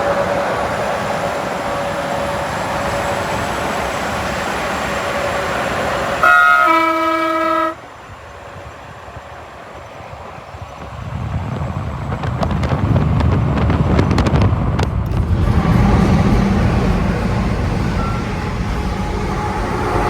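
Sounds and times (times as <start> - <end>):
traffic and engine noise: 0.0 - 20.0
multi-note air horn blast: 1.1 - 8.0.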